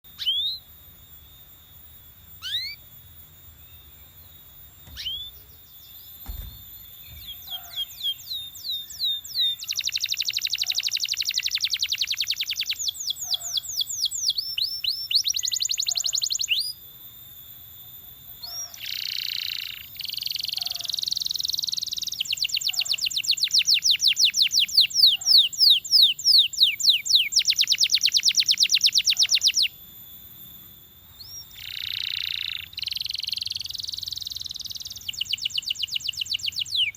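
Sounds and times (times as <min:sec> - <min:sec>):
canary singing trills: 0:00.1 - 0:16.8, 0:17.6 - 0:36.9.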